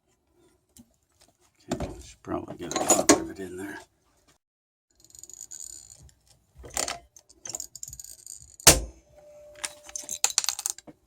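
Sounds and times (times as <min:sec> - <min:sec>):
metal parts rattling and clinking: 0:05.0 - 0:08.7, 0:09.6 - 0:10.9.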